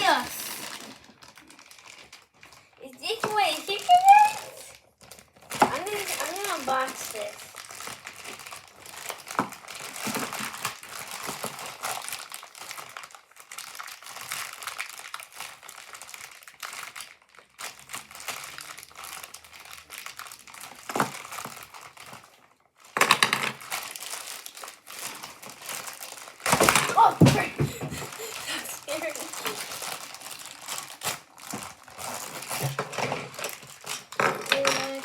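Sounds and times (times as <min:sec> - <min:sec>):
plastic packaging crinkling: 0:00.0 - 0:35.0.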